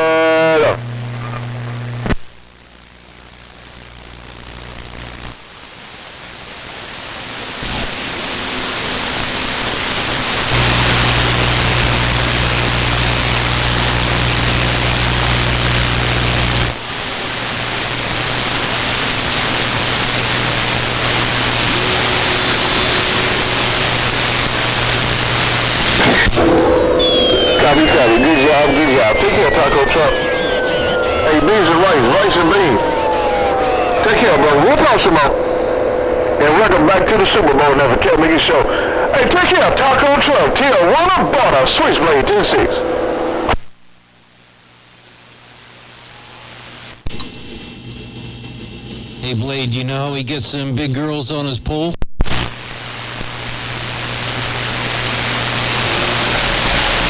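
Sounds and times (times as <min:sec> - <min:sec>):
radio static hiss: 0:00.0 - 0:57.0
low steady hum: 0:10.5 - 0:16.9
click: 0:47.0 - 0:47.4.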